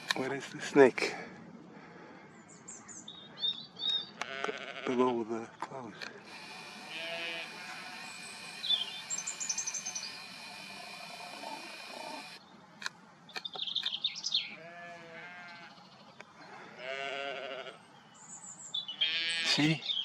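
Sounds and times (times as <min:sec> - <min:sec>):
small birds chirping: 0:02.2 - 0:17.0, 0:17.7 - 0:20.0
sheep bleating: 0:04.2 - 0:05.2, 0:06.2 - 0:12.3, 0:14.5 - 0:15.9, 0:16.8 - 0:17.8, 0:19.0 - 0:19.8
steady hiss: 0:06.2 - 0:12.4.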